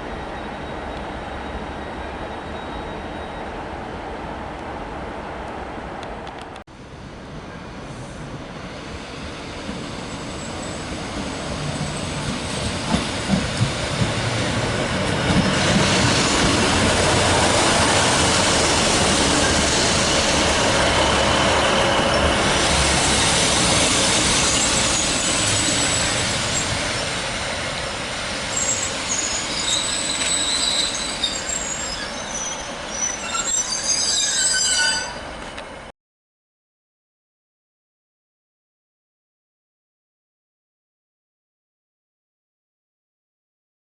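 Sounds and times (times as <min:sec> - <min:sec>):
train rumbling: 0:00.0 - 0:35.9
high-pitched wheel squeals: 0:28.5 - 0:35.4.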